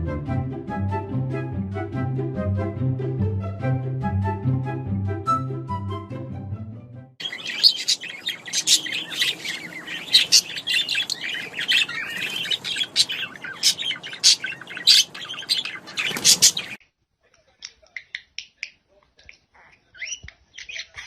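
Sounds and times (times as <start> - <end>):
music: 0.0 - 7.2
birds chirping: 7.2 - 16.8.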